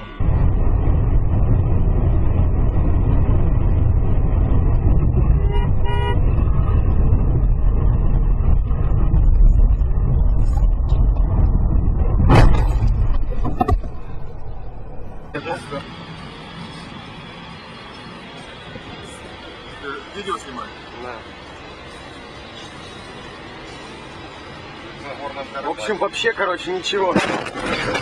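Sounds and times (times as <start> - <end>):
vehicle engine rumbling: 0.0 - 28.0
horn toot: 5.4 - 6.2
sharp bang: 12.2 - 14.2.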